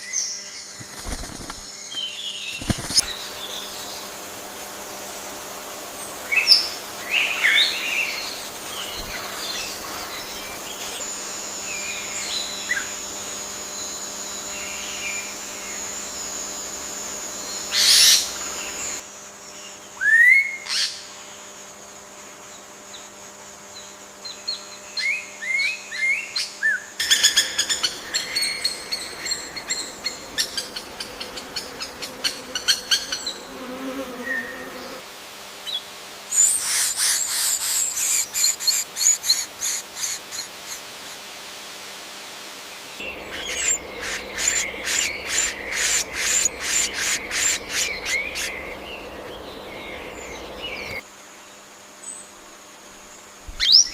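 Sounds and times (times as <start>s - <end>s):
bird calls: 0.0s - 4.1s, 6.3s - 11.1s, 17.5s - 19.0s, 26.0s - 35.0s, 36.4s - 41.2s, 43.0s - 51.0s
high insect drone: 0.0s - 53.9s.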